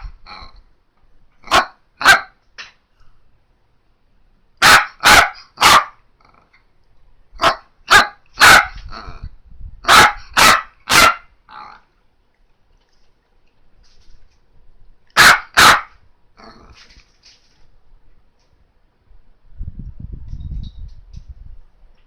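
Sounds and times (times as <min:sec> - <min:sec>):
dog barking: 0:01.4 - 0:02.4, 0:04.6 - 0:06.0, 0:07.4 - 0:08.8, 0:09.8 - 0:11.3, 0:15.2 - 0:16.0.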